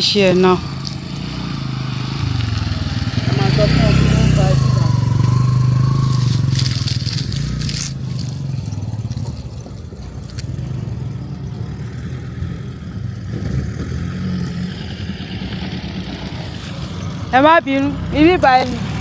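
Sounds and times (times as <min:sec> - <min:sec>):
vehicle engine running: 0:00.0 - 0:19.0
scraping and rustling noises: 0:05.8 - 0:10.6.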